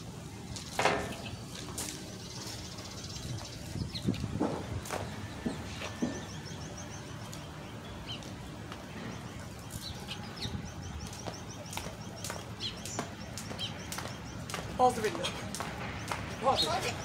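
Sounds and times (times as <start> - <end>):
low outdoor hum: 0.0 - 17.0
small birds chirping: 0.2 - 17.0
sharp ticks: 11.1 - 14.8.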